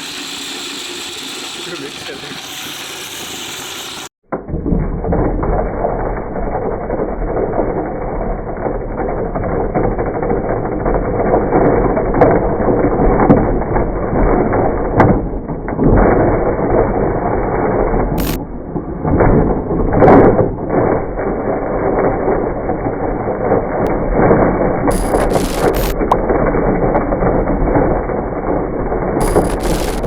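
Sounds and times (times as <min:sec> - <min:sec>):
mixer grinder running: 0:00.0 - 0:04.1, 0:18.2 - 0:18.4, 0:24.9 - 0:26.2, 0:29.2 - 0:30.0
sharp clicks: 0:18.2 - 0:18.4, 0:24.9 - 0:26.2, 0:29.2 - 0:30.0.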